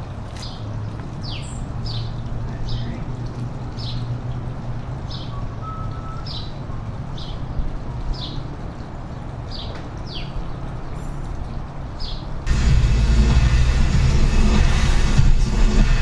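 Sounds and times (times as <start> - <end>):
bird chirping: 5.1 - 6.6
loud music: 12.5 - 16.0
low hum: 12.5 - 16.0.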